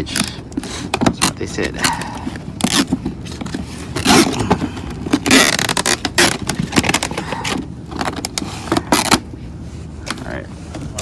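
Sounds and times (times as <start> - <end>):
packaging crackles: 0.0 - 9.2
packaging tearing: 2.6 - 9.2.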